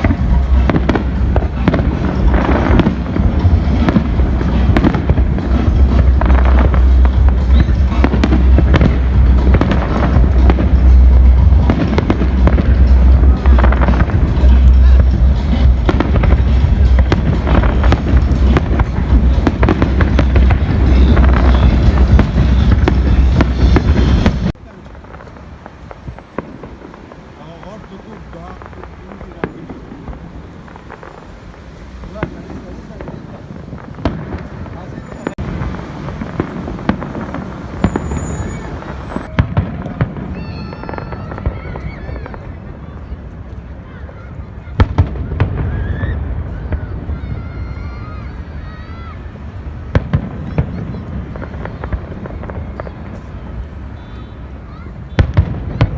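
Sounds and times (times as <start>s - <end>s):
deep rumble: 0.0s - 24.6s
fireworks bangs and crackles: 0.0s - 55.9s.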